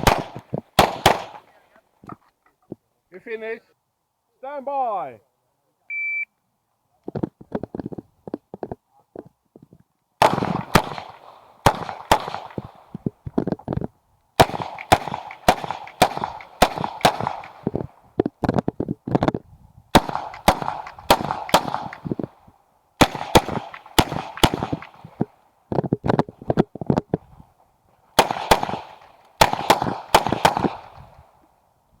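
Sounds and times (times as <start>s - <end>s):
pistol shots with echo: 0.0s - 1.5s, 10.2s - 12.9s, 14.4s - 17.8s, 19.9s - 22.4s, 23.0s - 25.2s, 28.2s - 31.0s.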